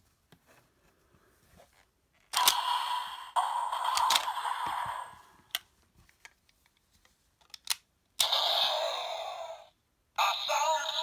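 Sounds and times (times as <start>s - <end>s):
toy electronic sound effect: 2.4s - 5.2s, 8.2s - 9.6s, 10.2s - 11.0s
plastic clicks: 7.4s - 8.3s.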